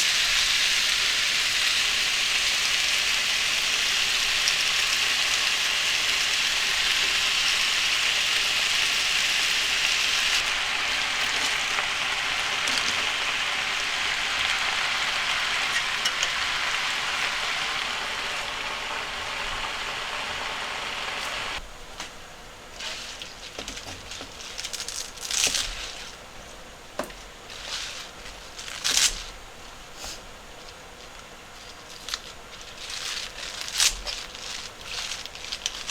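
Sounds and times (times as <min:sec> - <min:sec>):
gas stove hissing: 0:00.0 - 0:21.6.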